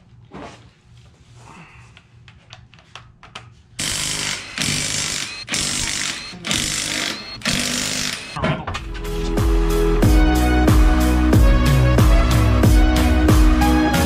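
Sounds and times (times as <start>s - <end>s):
impact wrench hammering: 3.8s - 8.4s.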